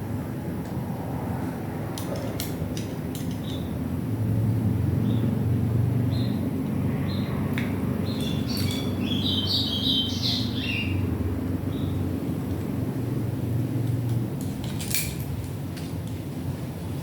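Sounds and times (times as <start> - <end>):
birds chirping and squawking: 8.0 - 11.1.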